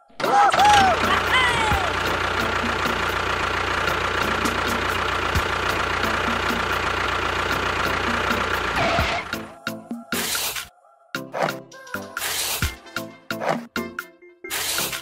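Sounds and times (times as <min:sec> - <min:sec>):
small engine idling with knock: 0:00.5 - 0:09.5.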